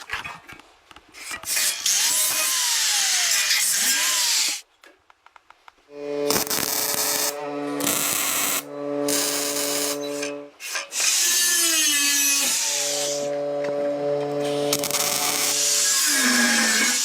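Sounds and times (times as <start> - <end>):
handheld power tool running: 6.0 - 13.2, 14.3 - 17.0
tool grinding against surface: 6.0 - 17.0.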